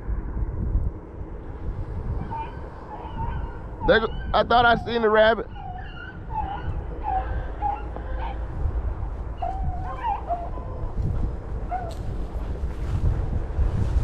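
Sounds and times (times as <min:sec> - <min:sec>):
low wind rumble on microphone: 0:00.0 - 0:14.0
dogs baying and yelping: 0:02.0 - 0:12.5.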